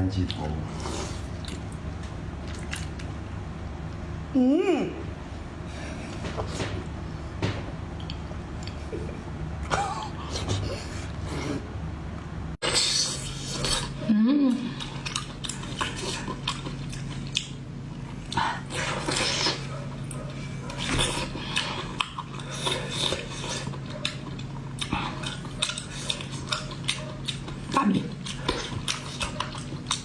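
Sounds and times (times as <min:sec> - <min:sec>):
steady low hum: 0:00.0 - 0:30.0
person chewing: 0:00.2 - 0:03.2, 0:12.6 - 0:14.1, 0:14.7 - 0:30.0.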